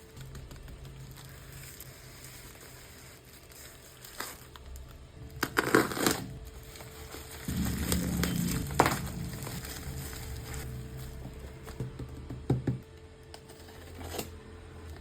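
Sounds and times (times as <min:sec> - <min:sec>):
packaging crinkling: 0:00.0 - 0:10.7.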